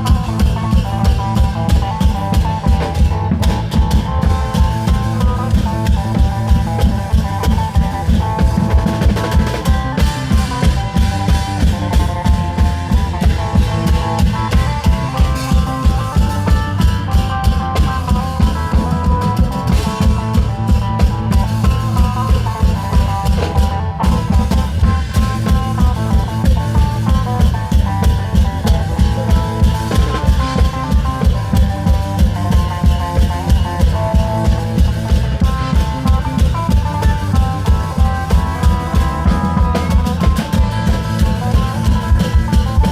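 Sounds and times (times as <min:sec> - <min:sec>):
long-drum band playing: 0:00.0 - 0:42.9.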